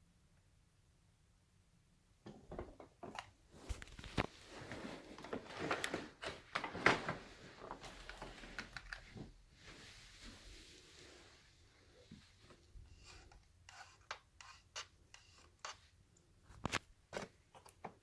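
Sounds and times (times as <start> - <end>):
rustling: 3.5 - 13.9.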